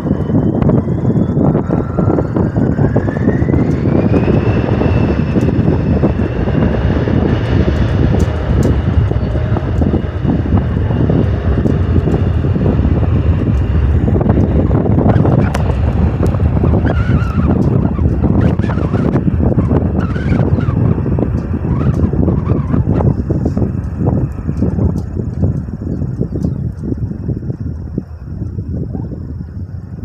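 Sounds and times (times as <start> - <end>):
jet engines spooling up: 0.0 - 30.0.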